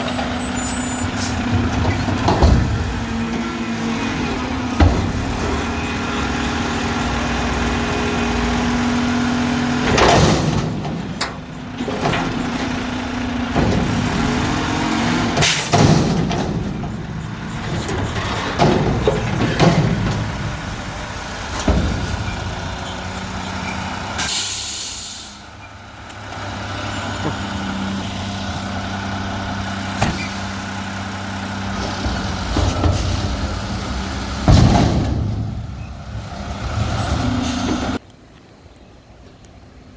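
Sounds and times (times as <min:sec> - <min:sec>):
diesel engine running: 0:00.0 - 0:38.1
knocks and clanks: 0:01.0 - 0:07.6, 0:09.6 - 0:24.2, 0:31.5 - 0:38.0.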